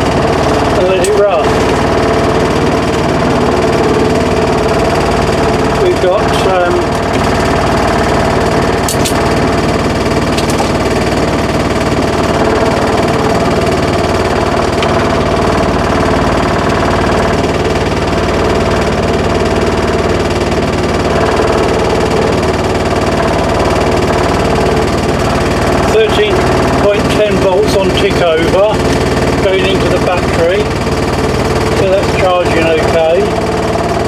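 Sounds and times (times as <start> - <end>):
engine idling: 0.0 - 34.0.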